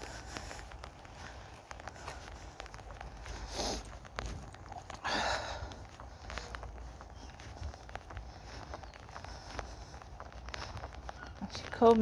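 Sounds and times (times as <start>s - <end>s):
breathy noises close to microphone: 0.0s - 12.0s
footsteps on wet pavement: 0.0s - 12.0s.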